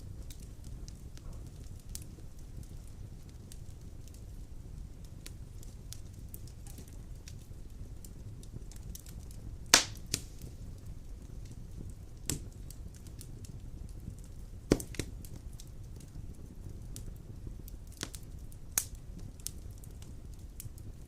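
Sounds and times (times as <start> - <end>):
burning logs popping: 0.0 - 21.0
fire rumbling in a fireplace: 0.0 - 21.0
logs crackling: 5.2 - 11.6, 14.2 - 16.1.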